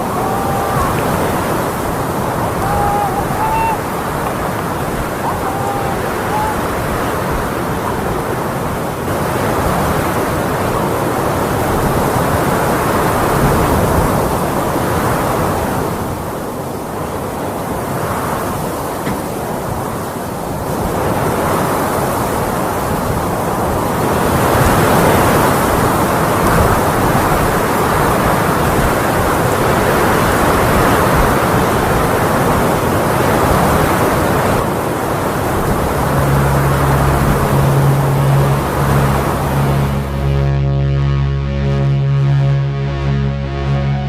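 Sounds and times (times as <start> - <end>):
strong wind buffeting microphone: 0.0 - 16.4
music with low sustained tones: 35.7 - 44.0.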